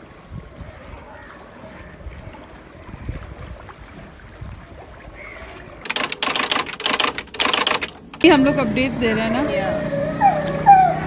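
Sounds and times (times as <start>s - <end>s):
wind rumbling on microphone: 0.0s - 5.8s.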